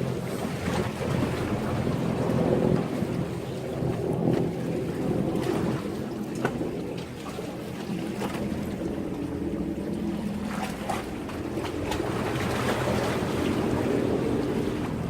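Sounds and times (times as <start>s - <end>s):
steady low rumble: 0.0s - 7.0s
sea waves washing against breakwater: 0.0s - 15.0s
water splashes: 0.0s - 15.0s
wind on microphone: 0.0s - 15.0s.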